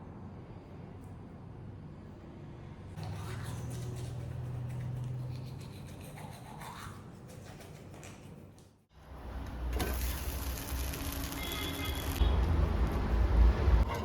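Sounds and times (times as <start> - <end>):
toothbrush scrubbing teeth: 3.0 - 8.7.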